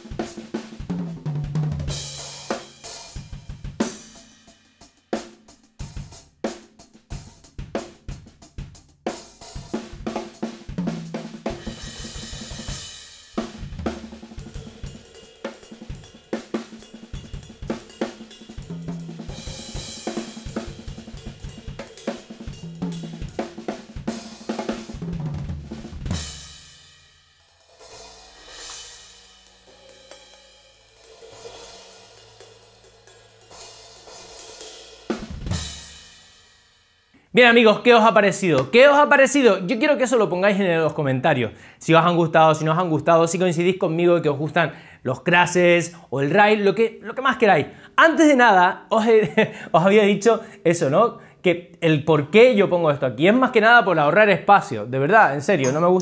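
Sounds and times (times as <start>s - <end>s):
snare and bass drum: 0.0s - 26.8s, 35.1s - 36.0s
cymbals: 1.8s - 7.4s, 9.1s - 25.1s, 25.7s - 37.0s
soft cymbal swells: 27.5s - 35.1s.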